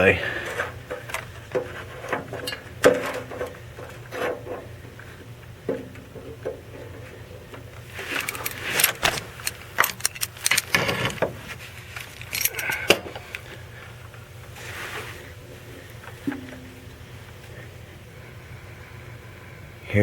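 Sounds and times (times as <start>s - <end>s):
metal clinking and rattling: 8.1s - 13.2s.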